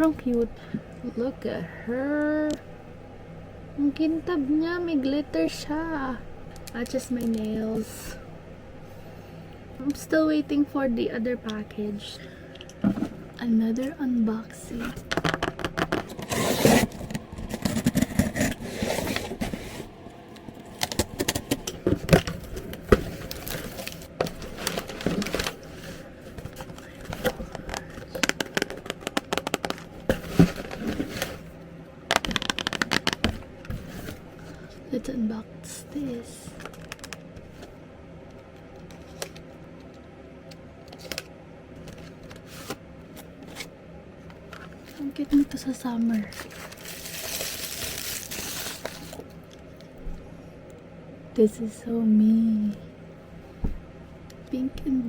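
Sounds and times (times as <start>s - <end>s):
low steady hum: 0.0s - 55.0s
packaging rustling and scraping: 14.6s - 34.8s, 40.9s - 43.7s, 44.4s - 49.4s.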